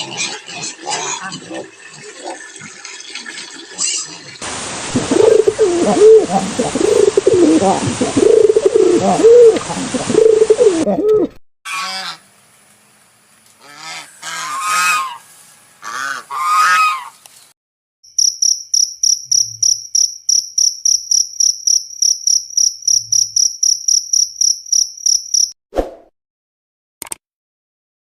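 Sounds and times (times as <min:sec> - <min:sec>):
waterfowl honking: 0:11.7 - 0:12.2, 0:13.6 - 0:17.1
cricket chirping: 0:18.1 - 0:25.6.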